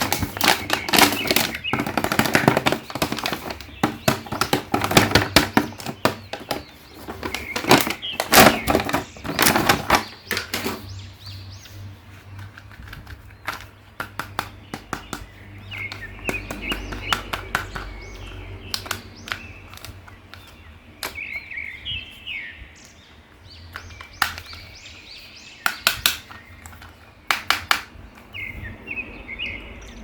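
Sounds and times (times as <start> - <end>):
birds chirping: 0.0 - 30.0
plastic clicks and taps: 12.3 - 21.2, 23.7 - 24.7, 25.6 - 28.3.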